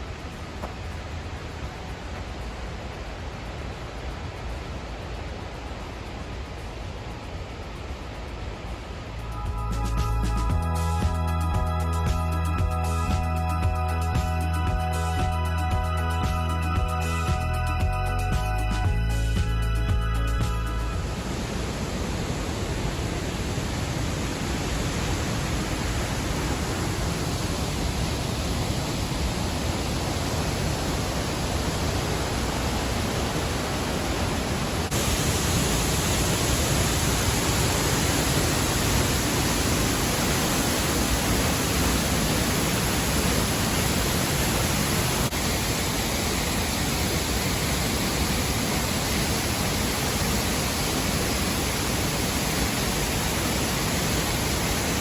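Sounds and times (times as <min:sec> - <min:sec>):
waterfall rushing: 0:20.7 - 0:55.0.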